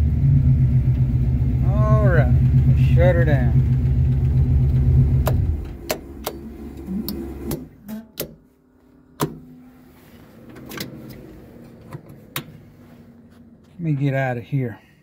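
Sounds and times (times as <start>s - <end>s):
car engine rumbling: 0.0s - 15.0s
toggle switches clicking: 7.1s - 8.4s.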